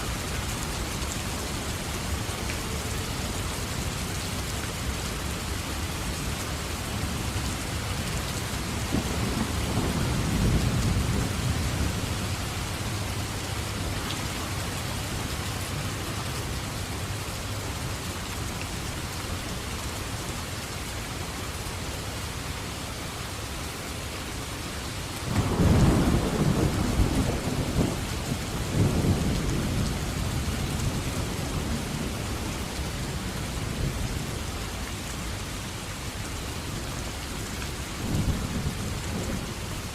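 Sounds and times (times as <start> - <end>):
heavy rain hissing: 0.0 - 39.9
thunder rumbling: 8.8 - 12.9, 25.3 - 32.6.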